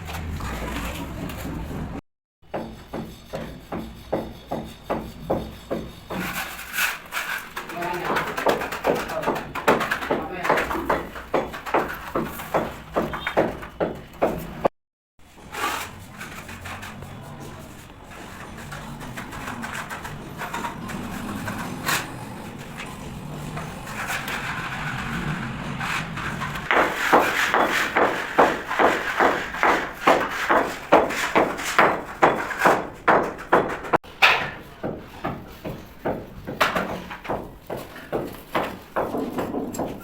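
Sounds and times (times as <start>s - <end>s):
rhythmic hand work strokes: 2.5s - 14.6s, 15.2s - 40.0s
low uneven work noise: 2.6s - 14.6s, 15.3s - 40.0s.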